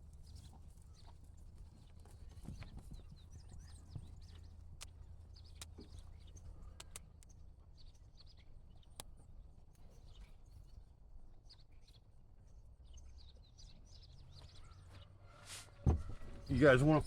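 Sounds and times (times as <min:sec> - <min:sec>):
small birds chirping: 0:00.0 - 0:17.0
soft clicks: 0:06.7 - 0:07.3.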